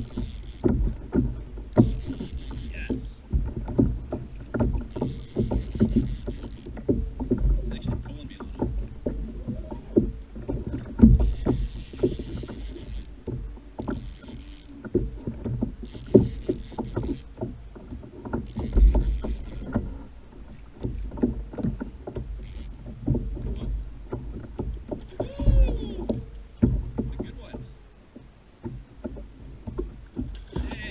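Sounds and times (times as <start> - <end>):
hollow knocks on kayak hull: 0.0 - 12.6, 14.9 - 30.9
high whirring: 1.7 - 3.2, 4.9 - 6.7, 11.0 - 13.2, 13.8 - 14.9, 15.8 - 17.3.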